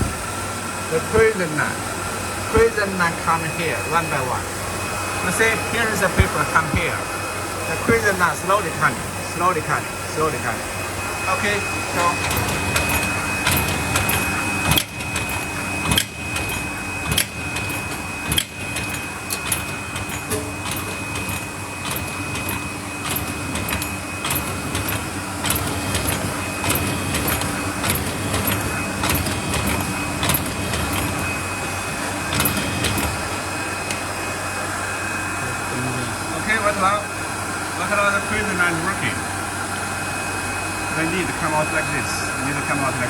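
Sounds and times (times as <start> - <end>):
machine humming with high whine: 0.0 - 43.0
sharp machine clicks: 11.4 - 34.0.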